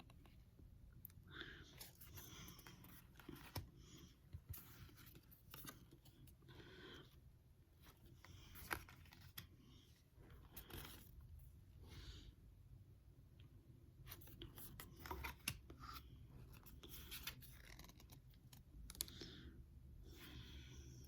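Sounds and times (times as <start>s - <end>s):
cards and packaging rustling: 1.7s - 6.5s, 7.8s - 9.6s, 14.1s - 19.2s.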